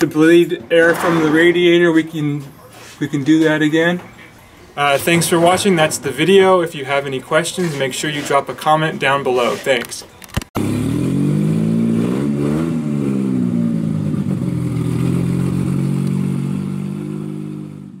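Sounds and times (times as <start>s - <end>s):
car engine revving and idling: 10.6s - 18.0s.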